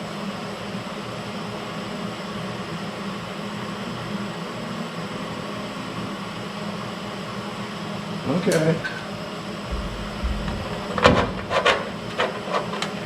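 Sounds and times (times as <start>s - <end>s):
machinery hiss and hum: 9.7s - 13.0s.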